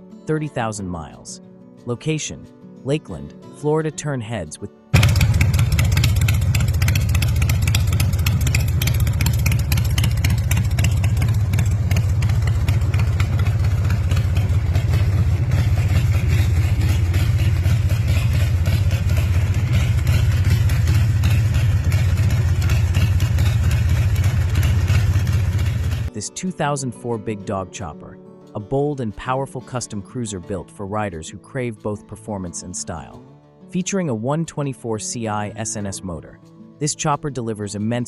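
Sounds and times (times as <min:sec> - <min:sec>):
motorcycle engine idling: 0:05.0 - 0:26.1.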